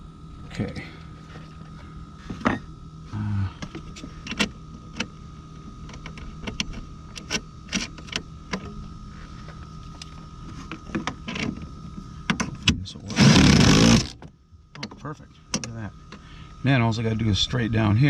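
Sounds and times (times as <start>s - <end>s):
short low motor whir: 13.0s - 14.2s.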